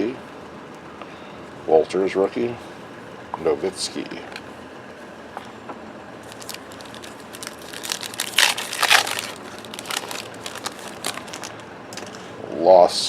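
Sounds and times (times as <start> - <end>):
cards clicking and rustling: 6.2 - 12.3
foil wrapper crinkling and tearing: 6.2 - 12.3.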